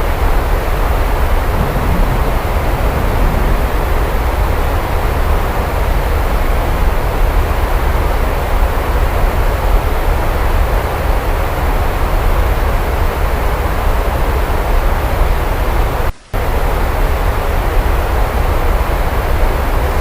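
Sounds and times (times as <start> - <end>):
heavy rain: 0.0 - 20.0
deep low rumble: 0.9 - 7.6.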